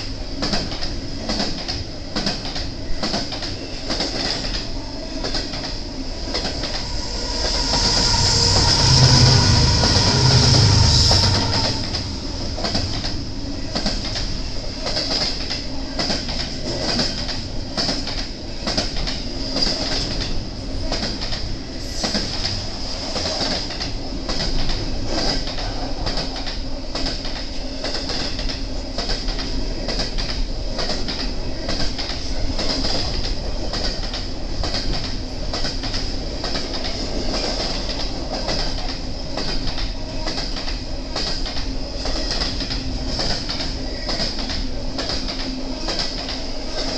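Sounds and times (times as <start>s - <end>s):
train wheels clicking over rail joints: 0.0s - 46.9s
thin high wheel whine: 6.1s - 12.6s.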